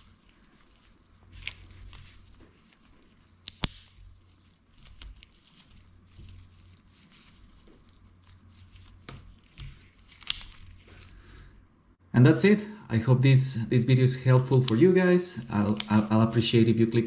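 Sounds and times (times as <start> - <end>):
faint handling noise: 0.0 - 11.8.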